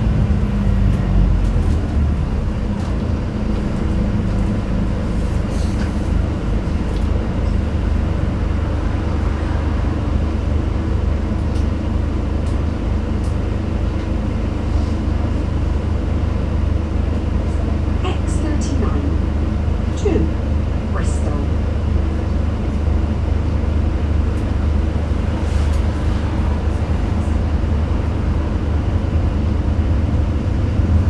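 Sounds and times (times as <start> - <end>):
road noise: 0.0 - 20.9, 21.6 - 31.0
bus diesel engine humming: 0.0 - 31.0.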